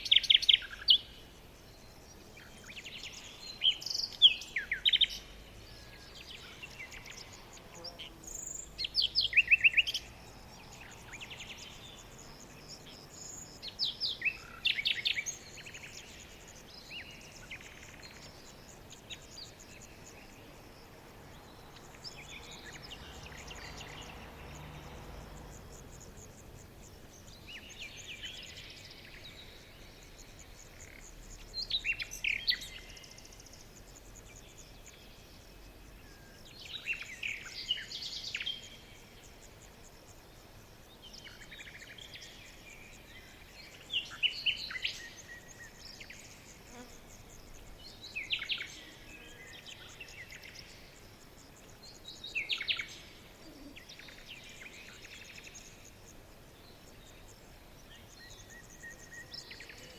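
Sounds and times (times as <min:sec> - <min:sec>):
birds chirping and trilling: 0:00.0 - 0:59.9
faint insects: 0:00.0 - 0:59.9.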